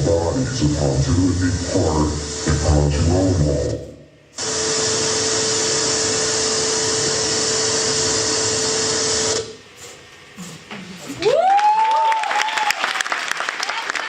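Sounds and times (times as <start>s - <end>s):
harsh electronic noise: 0.0s - 9.6s
steady hum: 0.0s - 12.3s.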